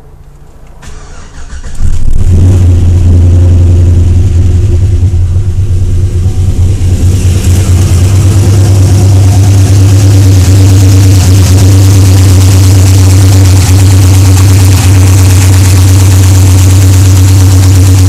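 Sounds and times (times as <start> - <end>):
starter cranking engine: 0.8 - 2.3
engine idling loudly: 2.0 - 18.0.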